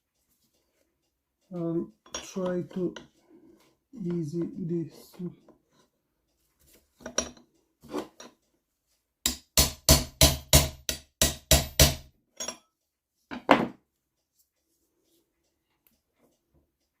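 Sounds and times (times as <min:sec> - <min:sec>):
hammer tapping on metal: 0:09.2 - 0:12.6.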